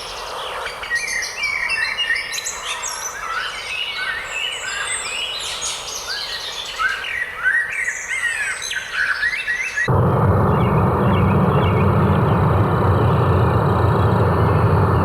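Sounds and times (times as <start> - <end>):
songbirds chirping and trilling: 9.9 - 15.0.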